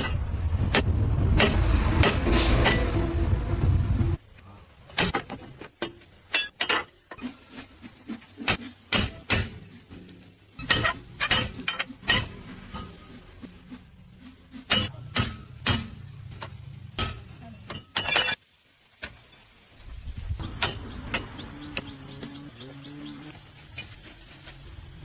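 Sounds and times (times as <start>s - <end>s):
hand tools clanking on metal: 14.7s - 18.4s.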